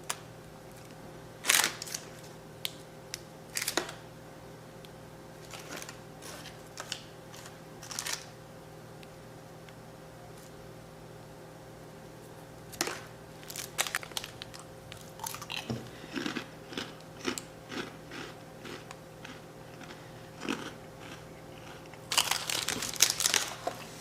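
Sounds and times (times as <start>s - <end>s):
person chewing crunchy snack: 13.4s - 23.6s.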